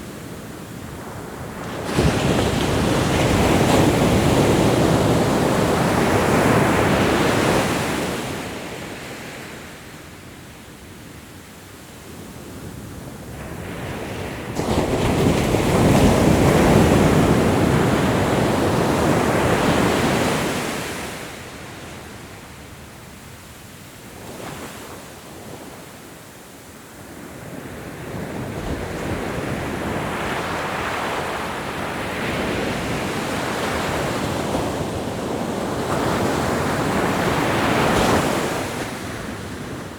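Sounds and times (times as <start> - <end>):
ocean waves breaking: 0.9 - 9.4.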